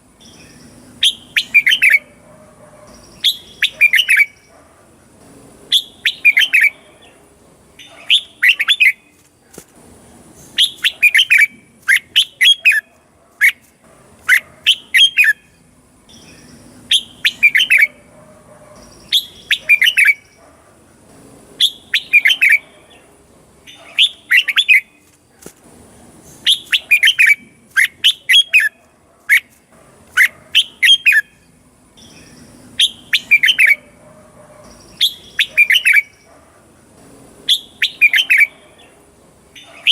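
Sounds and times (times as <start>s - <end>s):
bird chirping: 0.0s - 25.4s, 26.0s - 39.9s.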